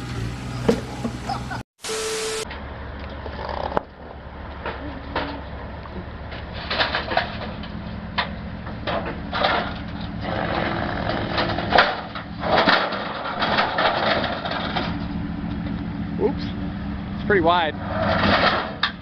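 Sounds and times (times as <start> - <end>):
heavy vehicle engine running: 0.0 - 19.0
knocks scrapes and crunching: 6.0 - 15.8, 17.8 - 19.0.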